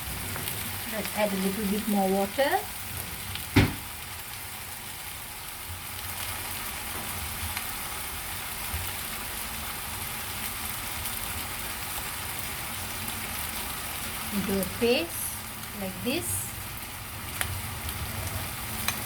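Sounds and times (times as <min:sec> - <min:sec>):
food sizzling in a pan: 0:00.0 - 0:19.0
sharp knock: 0:03.5 - 0:03.8.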